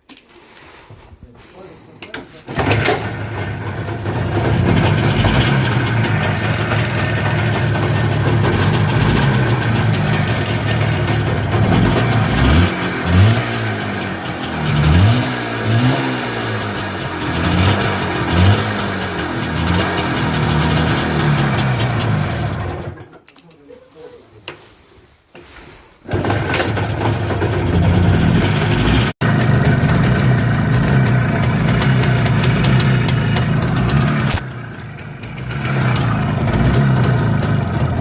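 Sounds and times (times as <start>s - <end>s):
motorcycle two-stroke engine running: 2.5s - 23.0s, 26.1s - 38.0s
engine revving: 2.6s - 23.0s, 26.1s - 38.0s.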